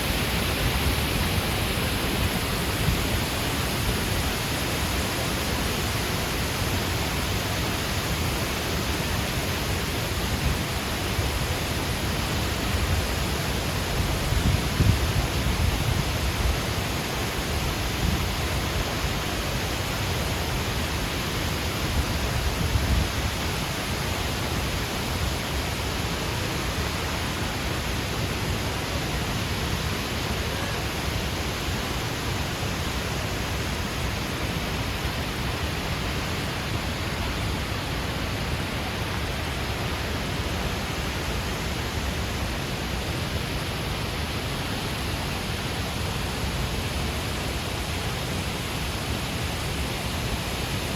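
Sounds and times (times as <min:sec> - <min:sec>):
waterfall rushing: 0:00.0 - 0:21.8.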